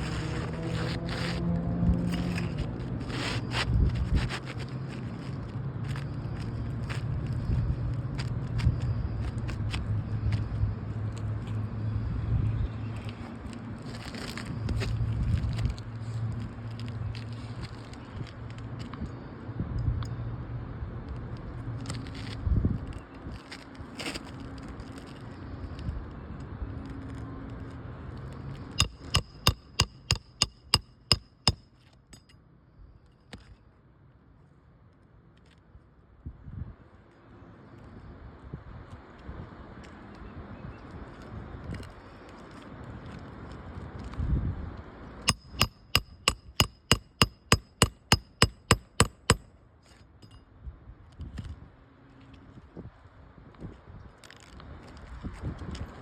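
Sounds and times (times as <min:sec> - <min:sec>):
hammer striking roofing nails: 0:28.8 - 0:31.6, 0:45.3 - 0:49.4.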